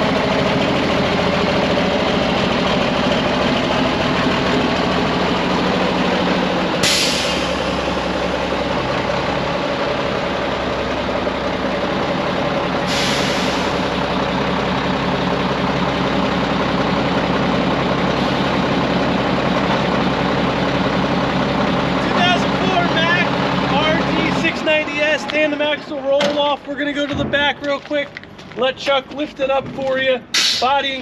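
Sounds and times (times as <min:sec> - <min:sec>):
diesel truck engine idling: 0:00.0 - 0:31.0
air brake hisses: 0:06.8 - 0:07.8, 0:12.8 - 0:13.9.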